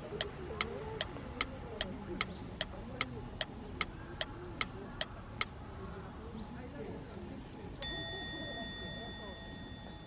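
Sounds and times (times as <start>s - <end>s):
sharp even ticks: 0.0s - 5.5s.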